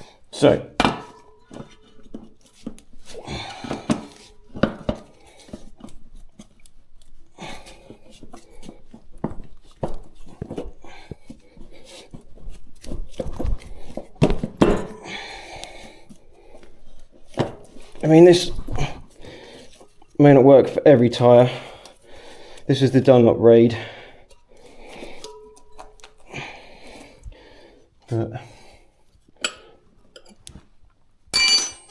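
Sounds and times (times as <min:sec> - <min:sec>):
tyre levers clinking on rim: 0:13.1 - 0:15.7, 0:24.3 - 0:27.1, 0:31.4 - 0:31.9.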